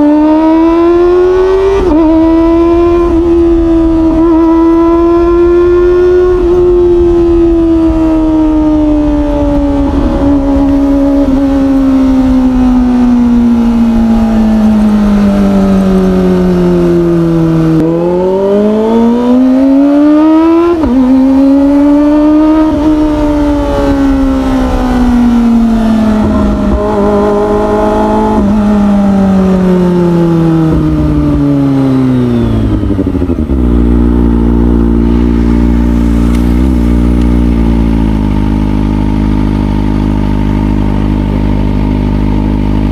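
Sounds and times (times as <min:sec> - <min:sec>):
motorcycle engine revving and idling: 0:00.0 - 0:42.9.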